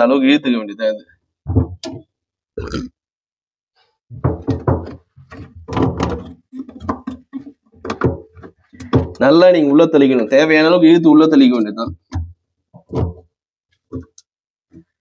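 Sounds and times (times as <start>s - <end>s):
hose pipe knocks and thunks: 1.4s - 2.1s, 4.1s - 9.5s, 11.8s - 15.0s.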